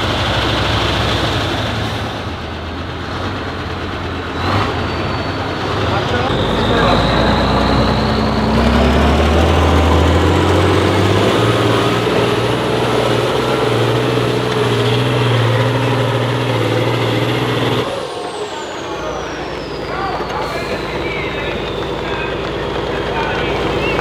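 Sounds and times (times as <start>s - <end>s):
truck engine revving: 0.0s - 24.0s
high whine: 6.0s - 24.0s.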